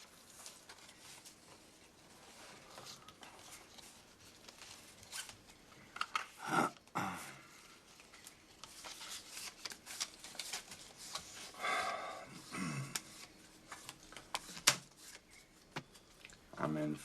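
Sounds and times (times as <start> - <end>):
playing cards rustling and clicking: 7.9 - 11.6, 12.4 - 16.1.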